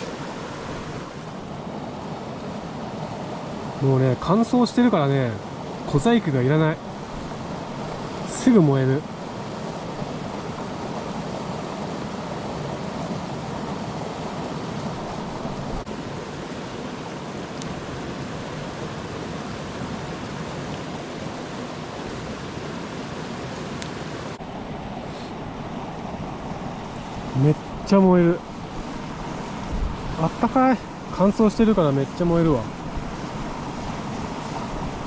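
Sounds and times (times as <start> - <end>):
campfire flames rushing: 5.5 - 24.4.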